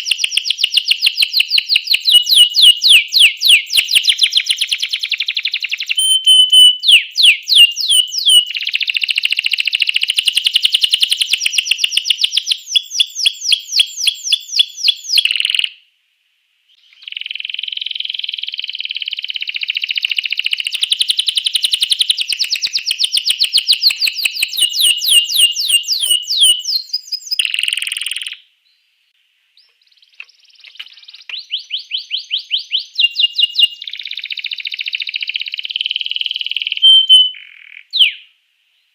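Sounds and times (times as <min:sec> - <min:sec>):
canary singing trills: 0:00.0 - 0:15.8, 0:16.8 - 0:28.5, 0:29.6 - 0:38.3.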